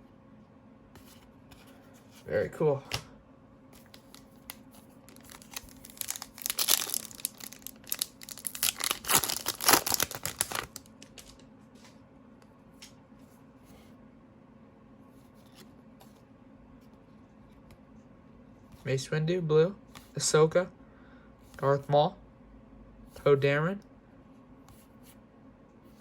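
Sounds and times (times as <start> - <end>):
foil wrapper tearing and crinkling: 5.1 - 11.4.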